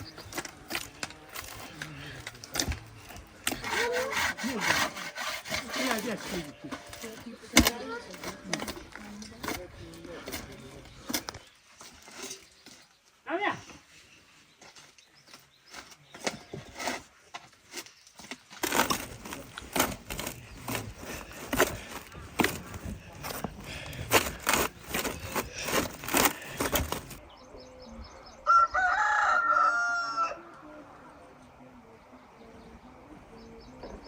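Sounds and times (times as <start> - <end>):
rooster crowing: 28.4 - 30.6.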